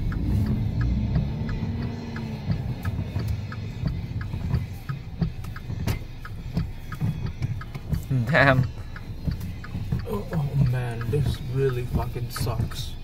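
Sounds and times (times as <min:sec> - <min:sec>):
low rumble: 0:00.0 - 0:05.8
car engine from inside cabin: 0:00.0 - 0:13.0
regular ticking: 0:00.0 - 0:13.0.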